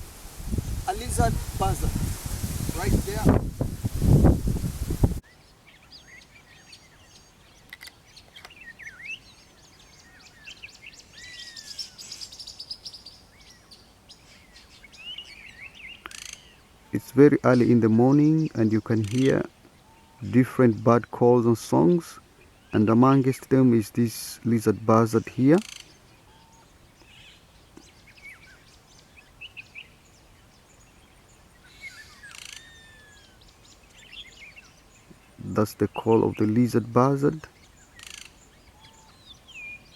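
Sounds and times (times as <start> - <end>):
songbirds chirping and whistling: 5.2 - 23.6, 24.6 - 39.9
birds chirping and whistling: 25.1 - 36.6, 37.5 - 39.9.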